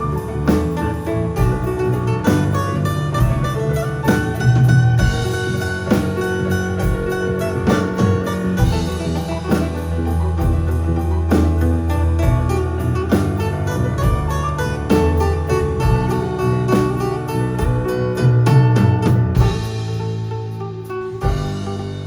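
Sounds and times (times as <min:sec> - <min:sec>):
drum hits: 0:00.0 - 0:22.0
live band playing: 0:00.0 - 0:22.0.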